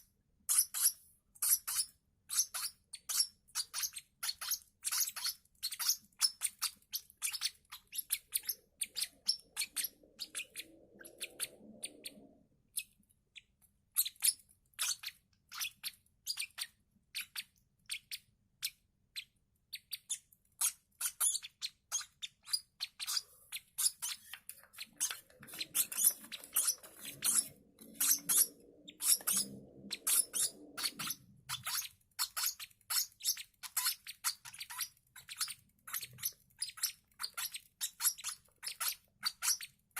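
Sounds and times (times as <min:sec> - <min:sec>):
chicks chirping high peeps: 0:00.5 - 0:39.7.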